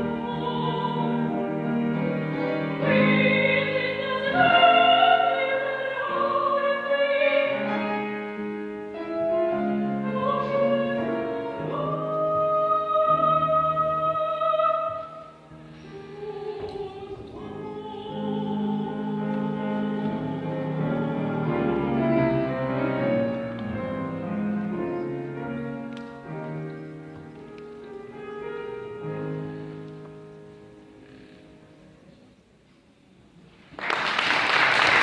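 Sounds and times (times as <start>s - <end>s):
operatic singer: 0.0s - 8.3s, 9.6s - 24.7s
piano accompaniment: 0.0s - 32.3s.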